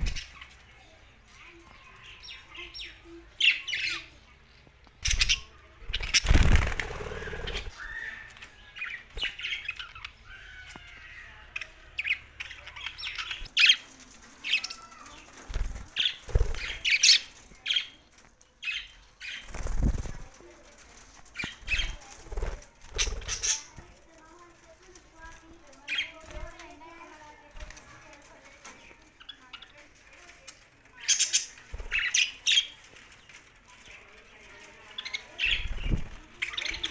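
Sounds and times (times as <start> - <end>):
wings flapping: 5.0 - 8.5, 13.2 - 17.6, 19.2 - 28.4, 31.5 - 36.9.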